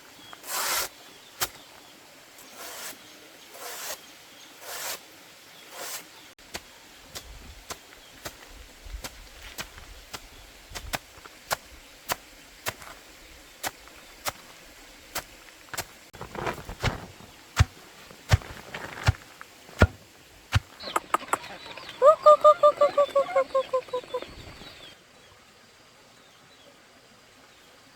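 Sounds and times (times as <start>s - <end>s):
blade chopping banana stems: 15.2s - 20.8s
chicken clucking: 20.6s - 24.9s.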